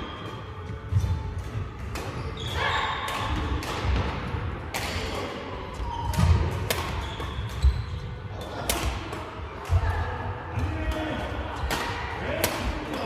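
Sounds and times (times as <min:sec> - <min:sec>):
racket hits: 0:01.0 - 0:02.4, 0:03.0 - 0:05.2, 0:06.1 - 0:07.6
shoe squeaks: 0:02.1 - 0:03.1, 0:05.8 - 0:06.3, 0:06.9 - 0:08.6.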